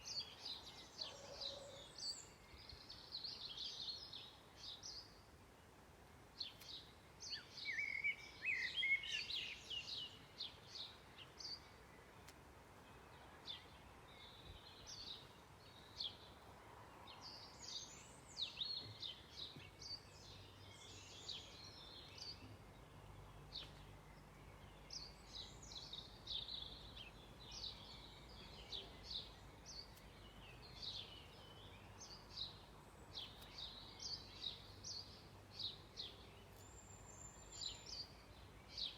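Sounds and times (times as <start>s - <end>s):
birds singing: 0.0s - 5.3s, 6.4s - 16.4s, 17.1s - 38.9s.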